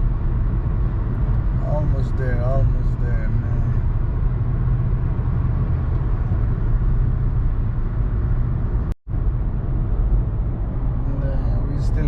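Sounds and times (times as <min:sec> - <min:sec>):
road and engine rumble in car: 0:00.0 - 0:12.0.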